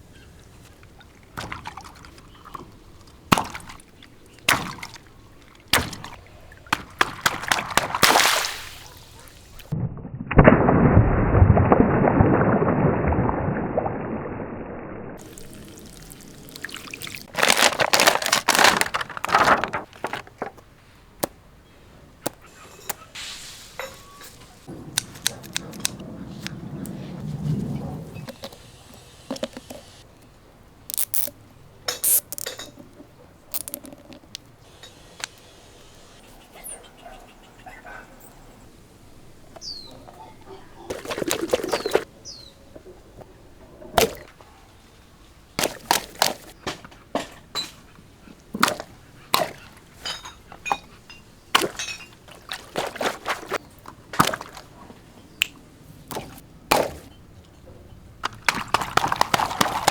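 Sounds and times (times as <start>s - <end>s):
water sloshing and pouring: 0.3s - 20.6s, 39.4s - 42.1s, 48.5s - 55.0s, 58.2s - 59.9s
rubber toys knocking and squishing: 5.7s - 8.0s, 17.1s - 21.4s, 22.2s - 23.0s, 30.9s - 31.4s, 32.0s - 32.9s, 33.5s - 34.6s, 58.2s - 59.9s.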